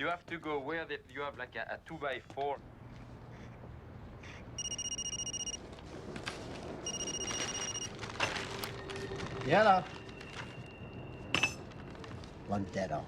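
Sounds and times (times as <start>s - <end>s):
electronic telephone ringing: 4.6s - 5.6s, 6.9s - 7.9s.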